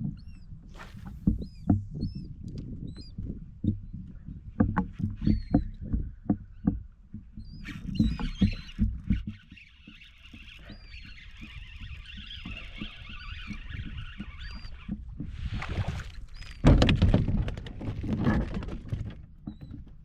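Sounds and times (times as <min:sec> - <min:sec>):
birds chirping: 0:00.0 - 0:15.0, 0:16.0 - 0:16.8.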